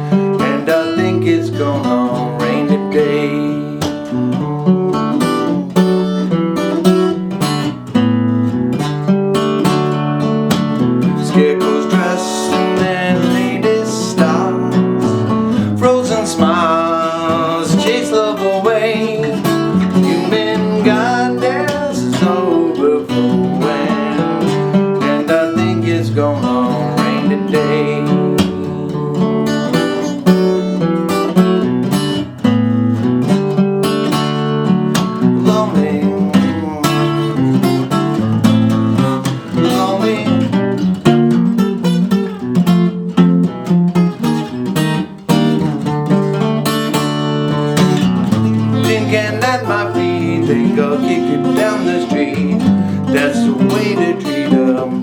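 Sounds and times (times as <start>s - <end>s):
acoustic guitar ballad: 0.0s - 55.0s.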